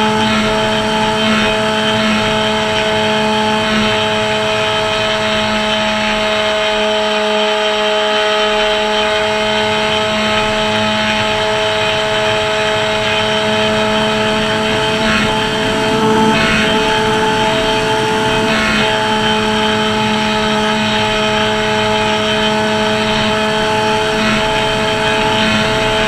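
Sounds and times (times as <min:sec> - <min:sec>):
model plane motor and propeller: 0:00.0 - 0:26.0
wind rushing over microphone: 0:11.3 - 0:26.0.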